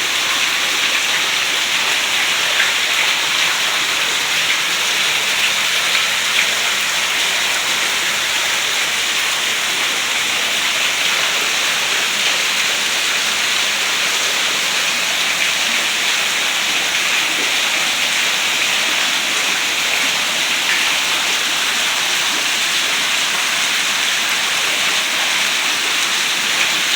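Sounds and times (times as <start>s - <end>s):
heavy rain falling: 0.0s - 26.9s.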